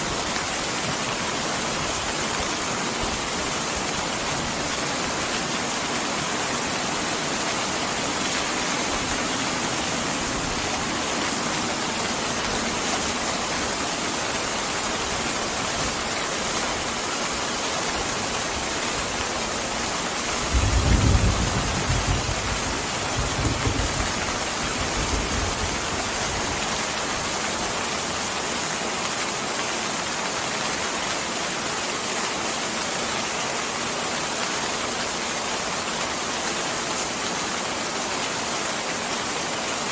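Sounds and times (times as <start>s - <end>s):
heavy rain falling: 0.0s - 39.9s
low rumble of thunder: 20.4s - 25.8s.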